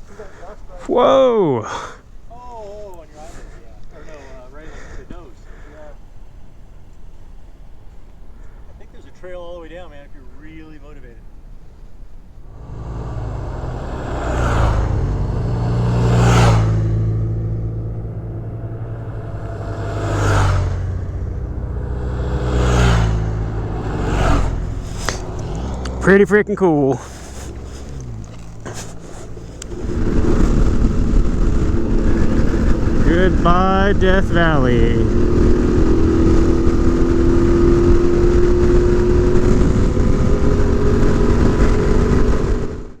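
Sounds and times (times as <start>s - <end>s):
motorcycle engine revving: 12.2s - 43.0s
wind rumble on microphone: 12.5s - 26.0s, 27.0s - 43.0s.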